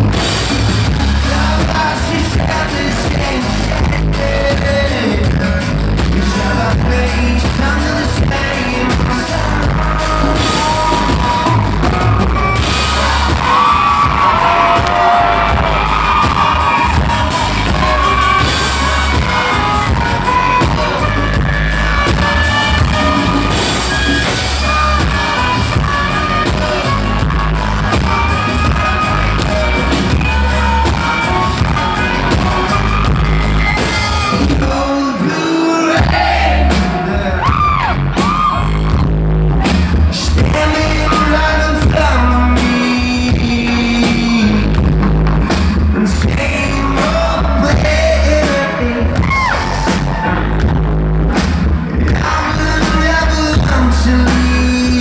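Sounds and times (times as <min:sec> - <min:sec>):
drum beat: 0:00.0 - 0:34.8, 0:35.9 - 0:55.0
bass: 0:00.0 - 0:55.0
guitar: 0:00.0 - 0:55.0
male singer: 0:00.8 - 0:39.0, 0:39.6 - 0:55.0.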